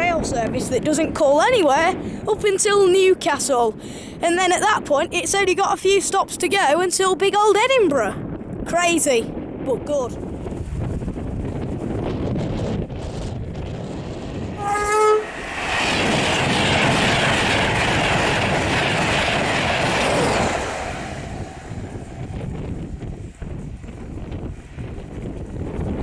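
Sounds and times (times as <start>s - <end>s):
wind on microphone: 0.0s - 26.0s
train passing at speed: 10.1s - 26.0s
train horn blast: 14.6s - 16.1s.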